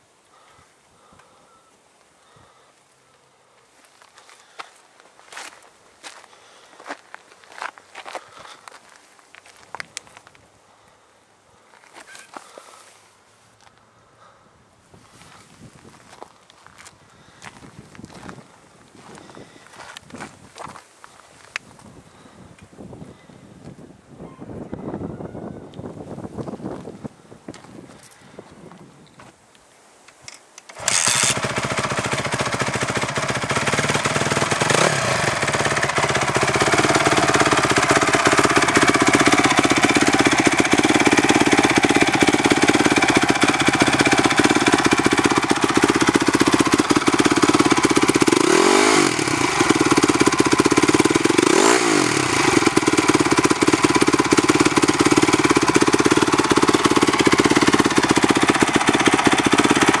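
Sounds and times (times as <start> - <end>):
motorcycle engine starting and idling: 30.6 - 60.0
engine revving: 30.8 - 60.0.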